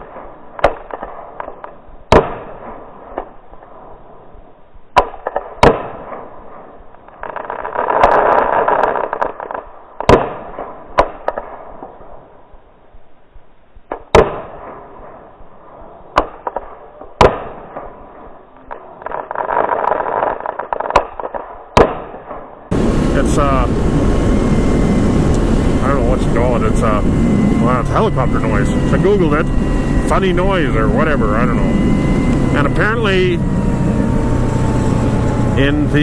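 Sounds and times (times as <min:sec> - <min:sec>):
rushing crackling fireworks: 0:00.0 - 0:36.0
fireworks bangs: 0:13.9 - 0:36.0.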